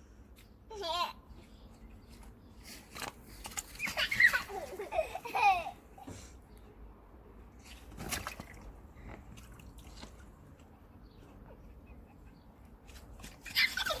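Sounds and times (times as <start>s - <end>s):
faint watery sounds: 7.4s - 11.5s.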